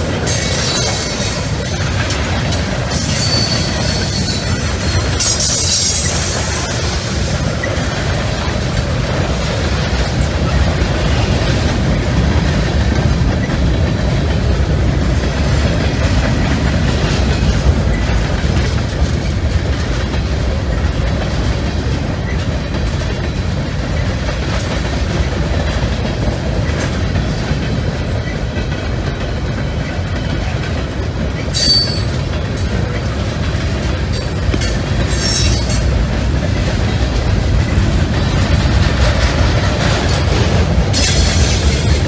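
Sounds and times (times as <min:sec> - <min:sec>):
freight train rumbling past: 0:00.0 - 0:42.0
train wheel clatter: 0:00.0 - 0:42.0
high-pitched wheel squeals: 0:00.3 - 0:01.8, 0:03.0 - 0:06.5, 0:31.6 - 0:32.1, 0:35.1 - 0:35.8.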